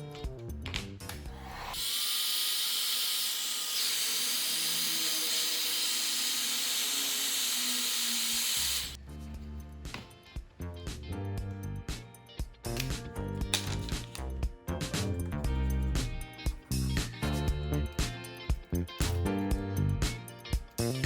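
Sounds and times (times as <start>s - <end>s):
background music: 0.0s - 1.8s, 9.0s - 21.0s.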